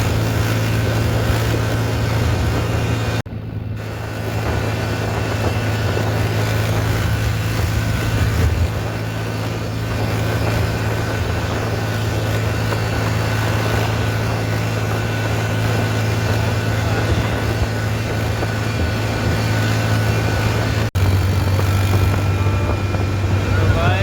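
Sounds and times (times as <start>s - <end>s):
road noise: 0.0s - 24.0s
tractor engine running: 0.0s - 24.0s.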